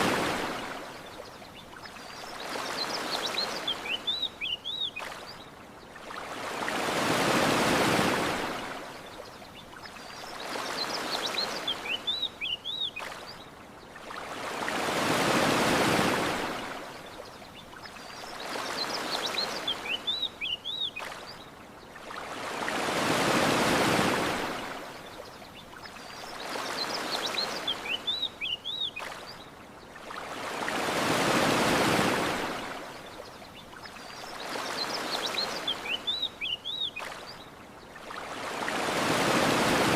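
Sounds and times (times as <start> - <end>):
surf washing onto shore: 0.0 - 1.0, 6.3 - 8.8, 14.3 - 16.7, 22.3 - 24.8, 30.3 - 33.0, 38.2 - 39.9.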